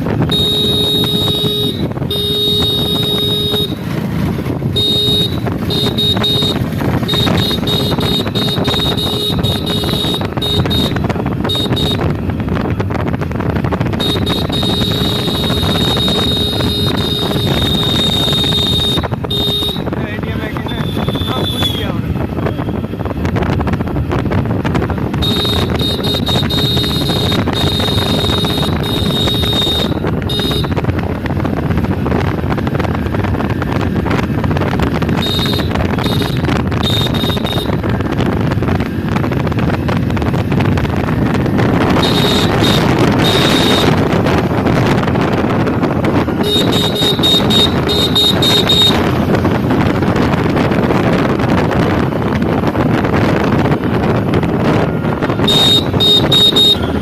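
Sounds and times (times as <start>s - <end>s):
motorcycle engine running: 0.0s - 57.0s
wind rush on microphone: 0.0s - 57.0s
motorcycle horn beeps: 0.1s - 12.4s, 13.9s - 22.8s, 25.1s - 31.0s, 34.9s - 38.0s, 41.8s - 44.4s, 46.1s - 49.4s, 54.8s - 57.0s.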